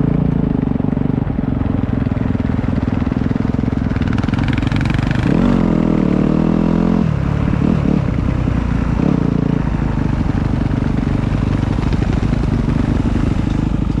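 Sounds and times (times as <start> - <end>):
motocross motorcycle engine: 0.0 - 14.0.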